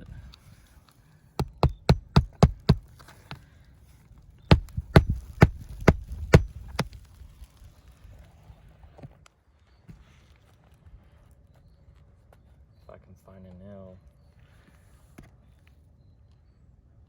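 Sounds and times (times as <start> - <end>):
hammer striking nail: 1.4 - 3.0, 4.5 - 6.9.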